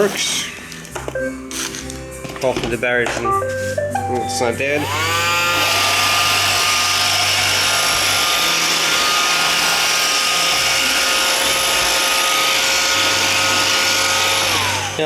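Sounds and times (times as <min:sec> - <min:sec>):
robot vacuum running: 0:04.8 - 0:15.0.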